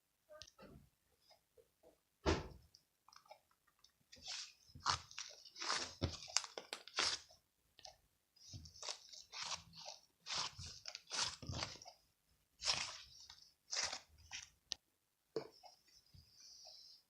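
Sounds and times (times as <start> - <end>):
crunchy food being chewed: 3.1 - 12.0, 12.6 - 14.6.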